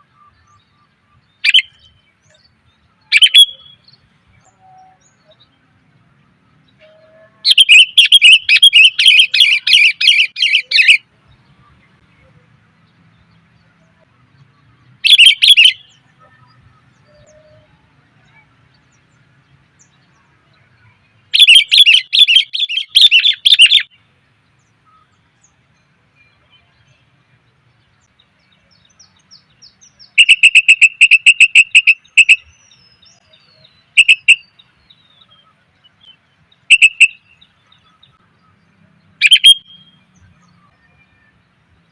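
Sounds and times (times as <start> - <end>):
bird rapid chattering calls: 1.4 - 1.8, 3.1 - 3.8, 7.4 - 11.0, 15.0 - 15.9, 21.3 - 23.9, 29.9 - 33.2, 34.0 - 34.5, 36.7 - 37.4, 39.2 - 39.8.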